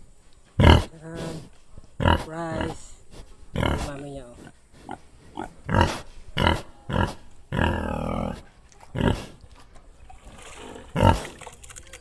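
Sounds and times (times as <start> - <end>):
pig grunting: 0.6 - 2.9, 3.5 - 9.4, 10.7 - 11.4.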